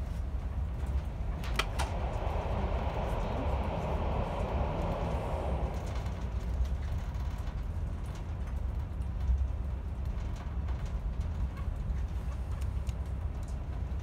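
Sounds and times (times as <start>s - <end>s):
rushing noise in tunnel: 0.0s - 14.0s
train rumbling: 0.0s - 14.0s
faint clicks and rattles: 5.7s - 14.0s.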